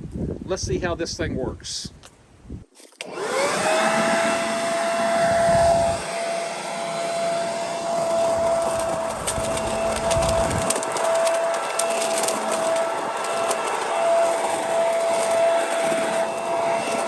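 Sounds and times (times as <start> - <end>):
leaf vacuum motor whine: 3.0 - 17.0
debris ticks and rattles: 8.4 - 16.0.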